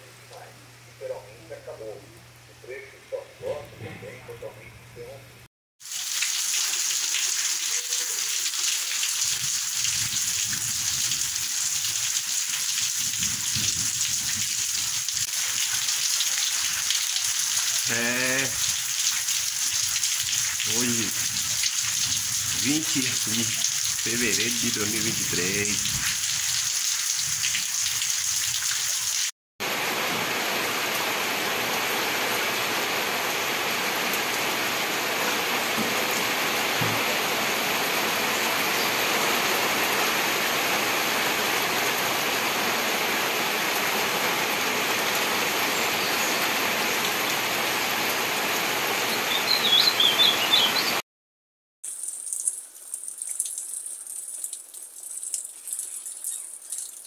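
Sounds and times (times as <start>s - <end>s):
heavy rain pouring: 5.8s - 50.6s.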